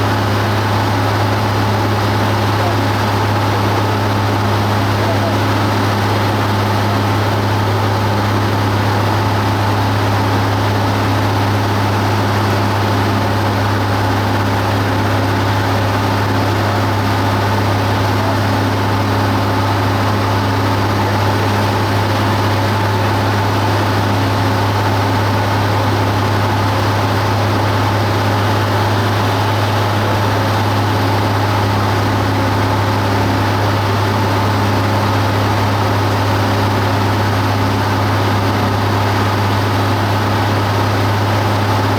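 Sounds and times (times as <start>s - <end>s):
propeller plane engine droning: 0.0s - 41.9s.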